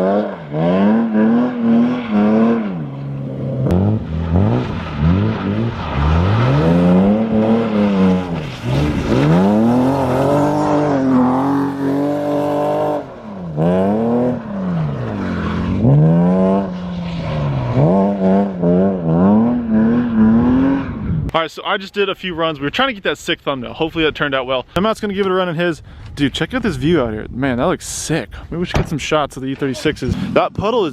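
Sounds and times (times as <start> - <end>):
car engine revving hard: 0.0 - 21.3.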